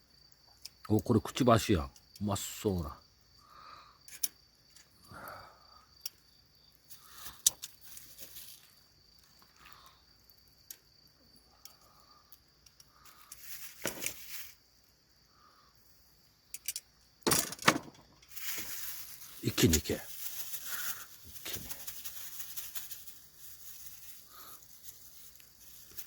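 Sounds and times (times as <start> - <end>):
crickets chirping: 0.0 - 26.0
short hissing bursts: 18.3 - 26.0.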